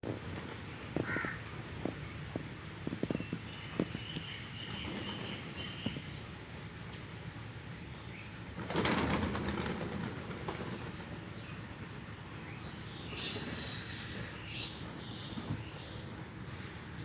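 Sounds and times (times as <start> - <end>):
bird wings flapping: 8.5 - 11.3.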